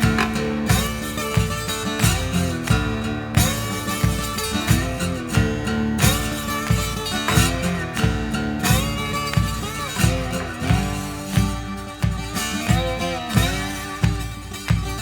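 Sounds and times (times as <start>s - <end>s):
steady beat: 0.0s - 15.0s
strummed acoustic guitar: 0.0s - 15.0s.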